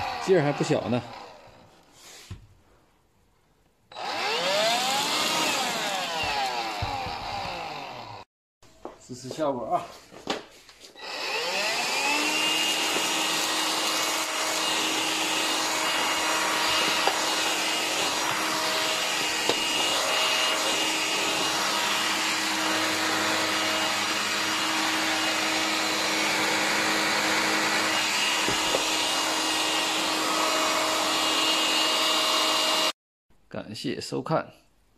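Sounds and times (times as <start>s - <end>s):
vacuum cleaner motor whine: 3.9s - 8.2s, 11.0s - 32.9s.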